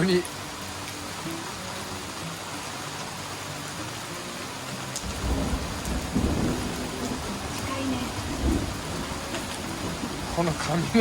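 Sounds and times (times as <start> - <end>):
heavy rain falling: 0.0 - 11.0
thunder rumbling: 5.0 - 11.0.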